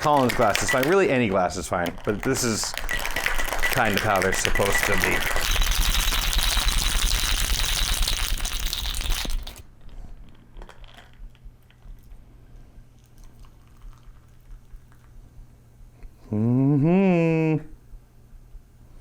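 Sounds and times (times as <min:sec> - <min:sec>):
ice clinking in glass: 0:00.0 - 0:09.6
cocktail shaker rattling with ice: 0:00.0 - 0:12.0.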